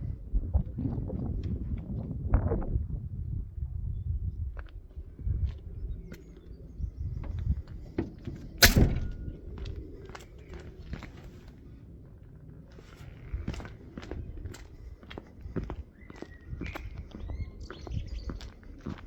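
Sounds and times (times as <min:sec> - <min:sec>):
loud thump: 0:08.6 - 0:09.3.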